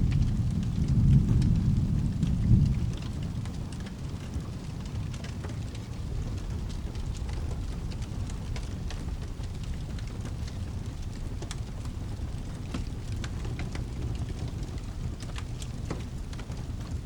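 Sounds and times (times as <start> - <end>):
low rumble: 0.0 - 3.6
steady rain: 0.0 - 17.0
fireplace crackling: 3.0 - 17.0.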